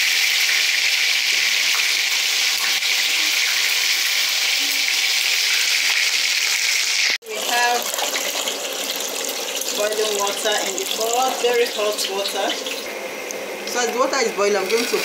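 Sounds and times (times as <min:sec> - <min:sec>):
chicken frying in hot oil: 0:00.0 - 0:15.0.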